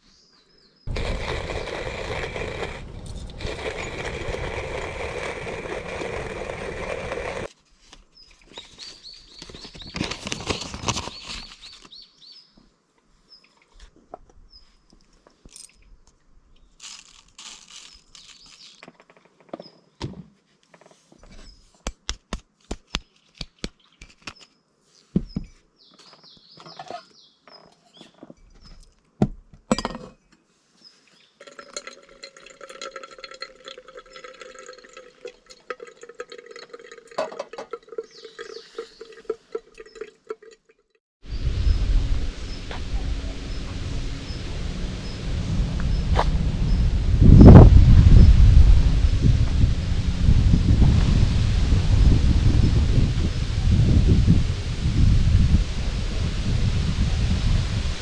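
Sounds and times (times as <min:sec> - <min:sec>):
bird chirping: 0:25.2 - 0:28.9, 0:37.9 - 0:39.2
loud steady rushing noise: 0:41.3 - 0:58.0.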